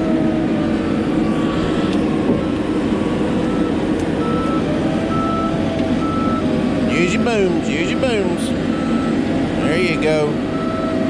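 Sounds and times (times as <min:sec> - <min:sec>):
diesel engine running: 0:00.0 - 0:11.0
travel alarm beeping: 0:03.0 - 0:11.0.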